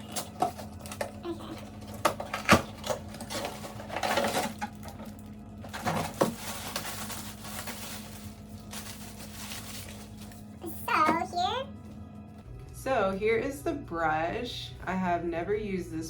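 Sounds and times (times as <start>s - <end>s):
objects clattering and rustling: 0.0s - 12.8s.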